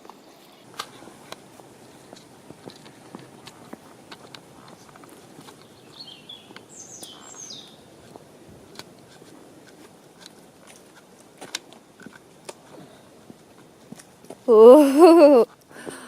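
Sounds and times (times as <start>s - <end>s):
light outdoor rustling: 0.0s - 16.0s
songbird warbling: 5.6s - 8.0s.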